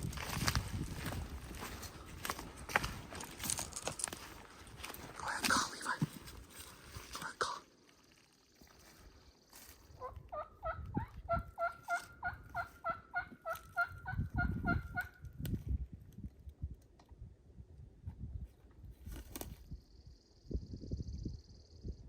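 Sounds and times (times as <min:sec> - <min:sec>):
turkey yelping: 0:10.0 - 0:15.1.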